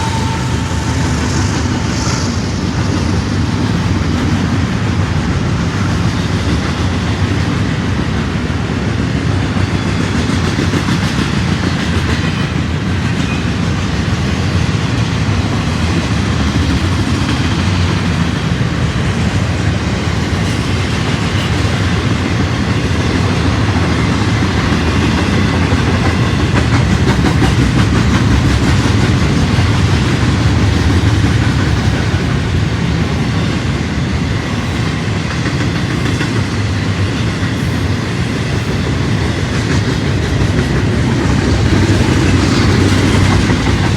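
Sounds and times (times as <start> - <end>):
train rumbling along track: 0.0 - 43.9
wheels clacking over rail joints: 9.4 - 43.9.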